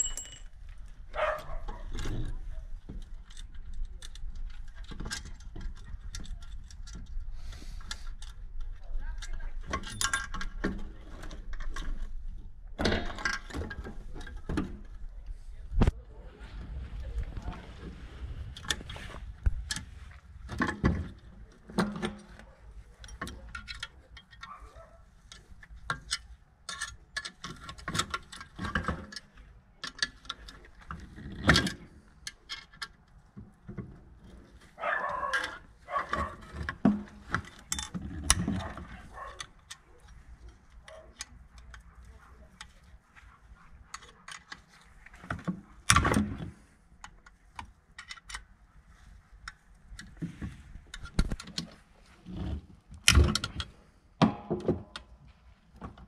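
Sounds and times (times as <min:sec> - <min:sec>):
metal tools clinking and knocking: 0:00.0 - 0:02.2, 0:09.2 - 0:12.0.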